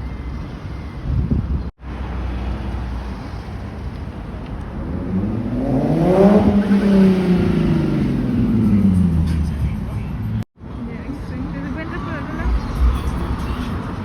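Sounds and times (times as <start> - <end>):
car driving past: 12.3 - 14.0.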